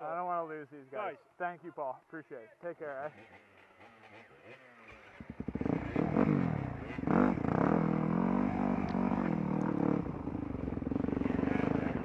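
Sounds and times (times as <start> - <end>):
dirt bike engine revving: 3.0 - 12.0.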